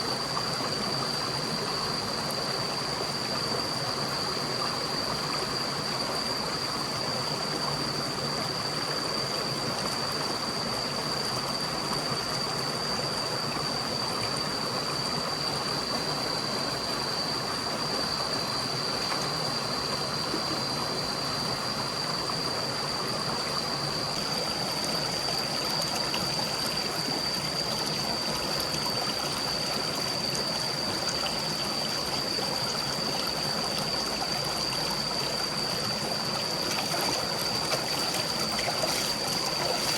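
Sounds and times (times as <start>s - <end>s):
stream flowing and trickling: 0.0s - 39.9s
high-pitched whine: 13.6s - 39.9s.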